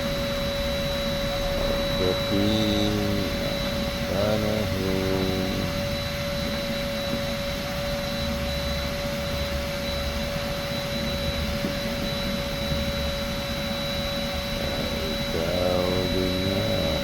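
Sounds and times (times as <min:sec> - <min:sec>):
machine drone with high whine: 0:00.0 - 0:17.0.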